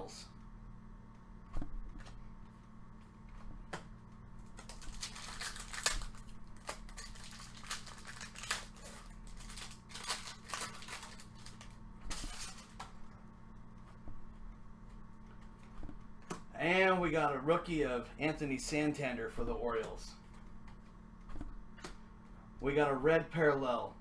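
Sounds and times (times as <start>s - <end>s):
low hum: 0.0s - 24.0s
trading cards rustling and clicking: 3.7s - 13.0s.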